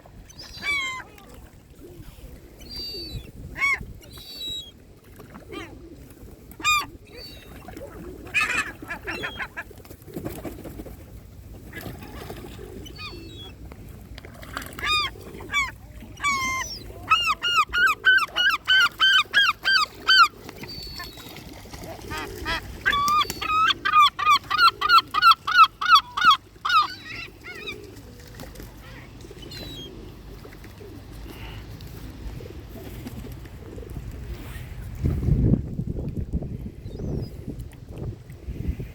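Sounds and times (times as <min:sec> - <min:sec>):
waterbird yelping calls: 0:00.3 - 0:01.2, 0:06.6 - 0:09.6, 0:14.8 - 0:21.4, 0:22.0 - 0:27.8.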